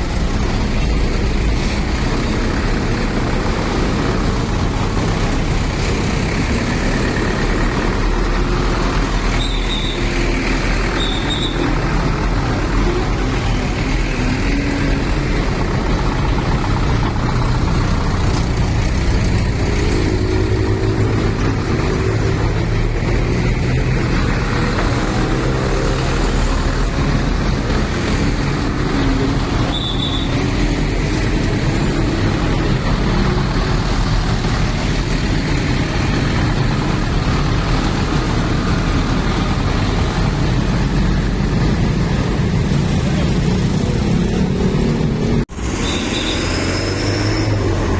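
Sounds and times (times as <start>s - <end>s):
truck engines rumbling: 0.0s - 47.9s.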